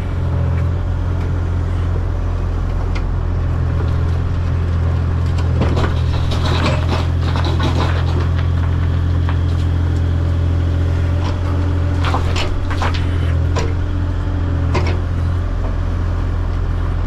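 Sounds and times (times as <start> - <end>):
engine idling: 0.0 - 17.0
light clattering and scraping: 3.9 - 10.1, 11.1 - 13.8.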